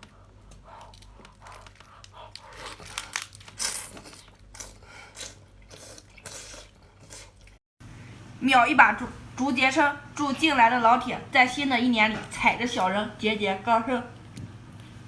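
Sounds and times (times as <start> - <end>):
tearing and crunching while eating: 0.7 - 7.6.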